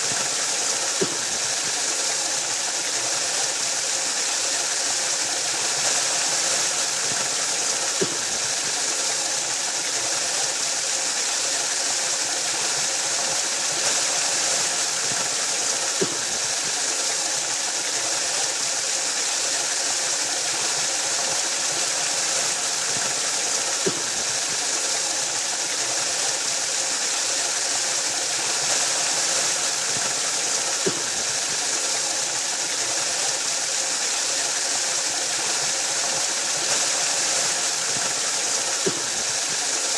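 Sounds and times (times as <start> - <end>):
waterfall rushing: 18.8 - 39.9.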